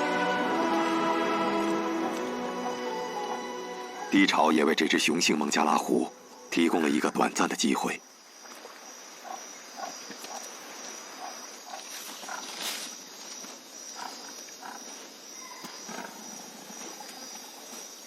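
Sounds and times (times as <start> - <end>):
insects buzzing high: 0.0 - 5.4.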